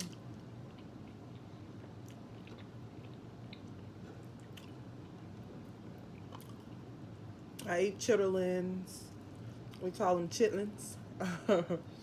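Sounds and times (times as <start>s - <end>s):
person chewing: 0.0s - 6.9s
steady low hum: 0.0s - 12.0s.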